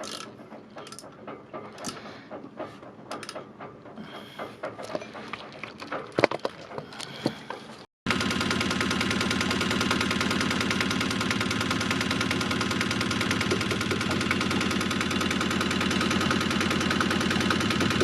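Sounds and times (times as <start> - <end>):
diesel engine running: 8.1 - 18.0.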